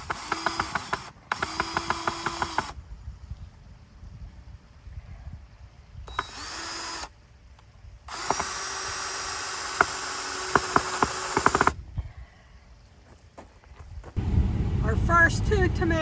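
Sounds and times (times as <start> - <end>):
small motor whirring: 0.0 - 2.8, 6.1 - 7.2, 8.1 - 11.8.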